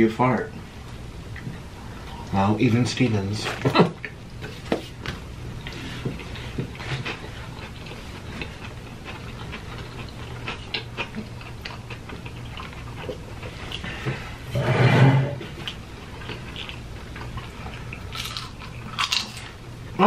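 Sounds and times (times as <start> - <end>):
low steady hum: 0.0 - 20.0
man chewing a sandwich: 3.6 - 14.5, 15.4 - 20.0.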